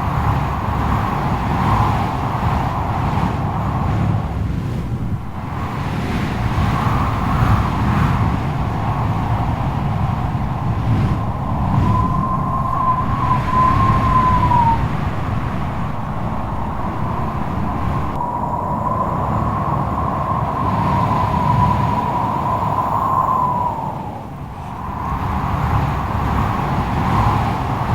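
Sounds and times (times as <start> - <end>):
strong wind howling: 0.0 - 27.9
high wavering whistle: 11.2 - 14.9.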